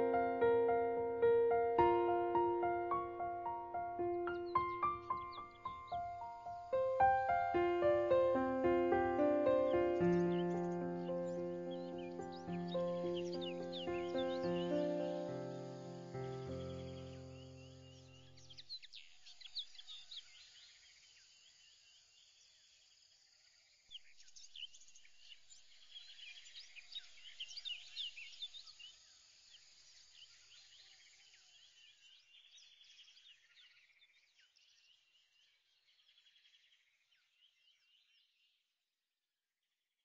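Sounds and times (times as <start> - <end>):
birds chirping: 0.0 - 20.2.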